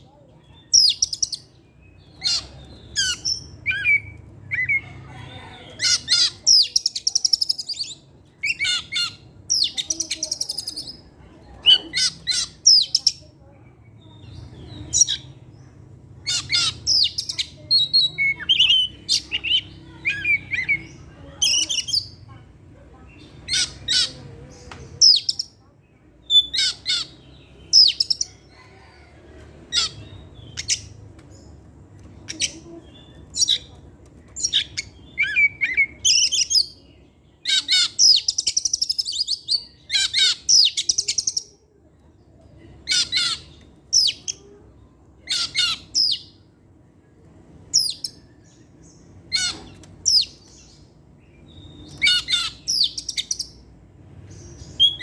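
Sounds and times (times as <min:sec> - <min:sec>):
bird singing whistled phrases: 0:54.8 - 0:55.0.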